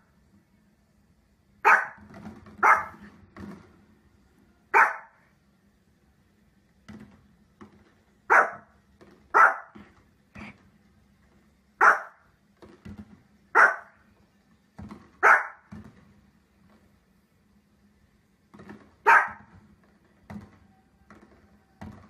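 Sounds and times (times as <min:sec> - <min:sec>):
dog yipping: 0:01.6 - 0:02.0, 0:02.6 - 0:03.0, 0:04.8 - 0:05.2, 0:08.3 - 0:08.7, 0:09.3 - 0:09.8, 0:11.8 - 0:12.2, 0:13.6 - 0:13.9, 0:15.2 - 0:15.6, 0:19.0 - 0:19.5
small dog barking: 0:01.6 - 0:02.0, 0:02.6 - 0:03.0, 0:04.7 - 0:05.2, 0:08.3 - 0:08.7, 0:09.3 - 0:09.8, 0:11.8 - 0:12.2, 0:13.5 - 0:14.0, 0:15.2 - 0:15.7, 0:19.0 - 0:19.5.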